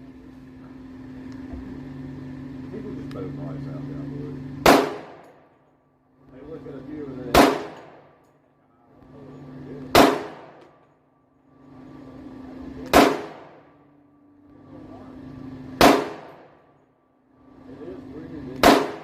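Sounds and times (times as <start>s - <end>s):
pistol shots: 4.6s - 5.4s, 7.3s - 8.1s, 9.9s - 10.7s, 12.8s - 13.7s, 15.8s - 16.6s, 18.6s - 19.0s.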